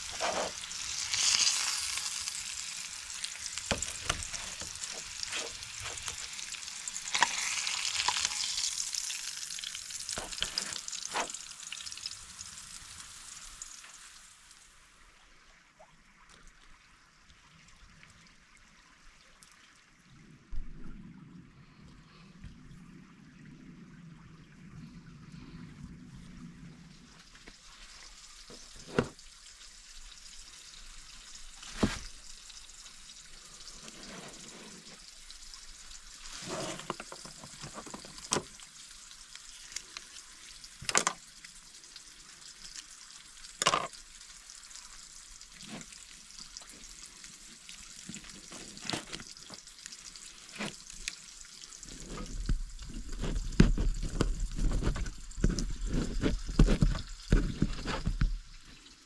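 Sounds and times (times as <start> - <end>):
food sizzling: 0.0 - 14.8.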